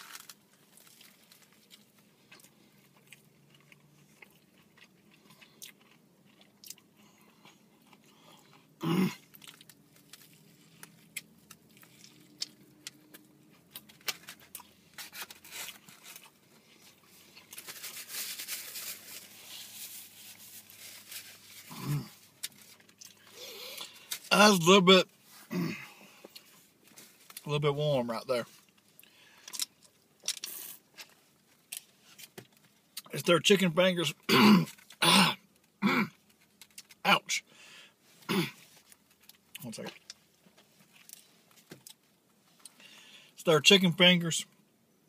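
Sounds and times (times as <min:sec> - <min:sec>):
person chewing crunchy food: 0:00.0 - 0:24.1.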